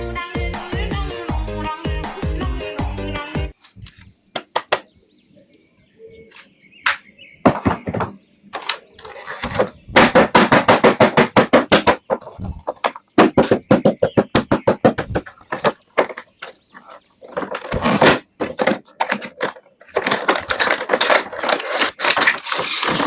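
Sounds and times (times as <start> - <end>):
plastic toy and packaging crackling: 8.5 - 9.8, 15.2 - 23.0.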